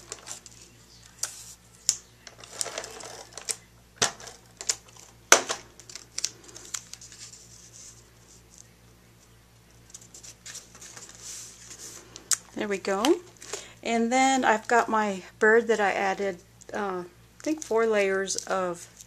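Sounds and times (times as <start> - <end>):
paper rustling: 5.8 - 8.7, 9.9 - 12.1.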